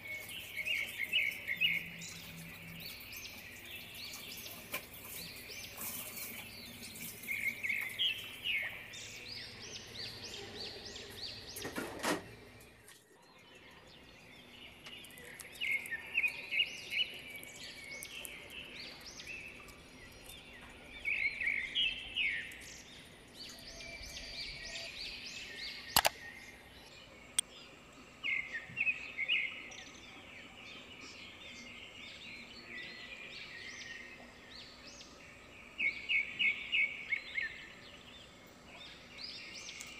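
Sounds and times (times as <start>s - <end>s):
small birds chirping: 0.0s - 39.9s
sharp click: 25.9s - 26.2s.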